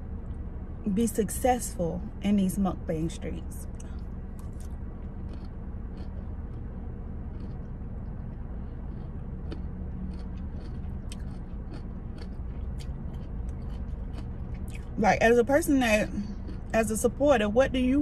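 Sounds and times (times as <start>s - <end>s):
low car interior hum: 0.0s - 18.0s
person chewing: 3.7s - 15.0s, 16.2s - 16.7s.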